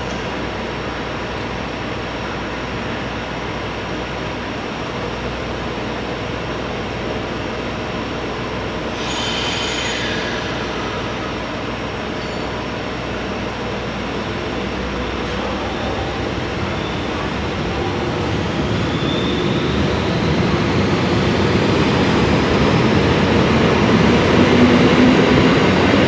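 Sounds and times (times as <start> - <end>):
electric train rumbling: 0.0 - 26.0
high-pitched squeal: 9.0 - 13.0.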